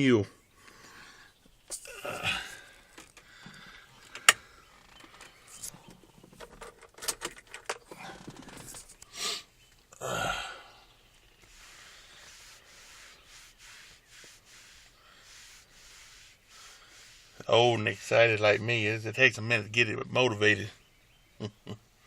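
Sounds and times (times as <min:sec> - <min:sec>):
clicks and knocks: 0:05.9 - 0:08.8.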